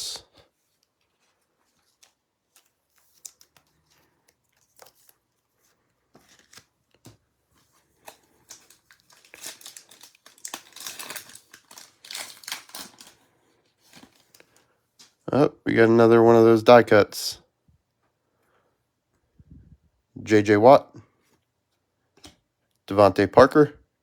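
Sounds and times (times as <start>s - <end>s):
foil wrapper tearing and crinkling: 8.0s - 13.2s.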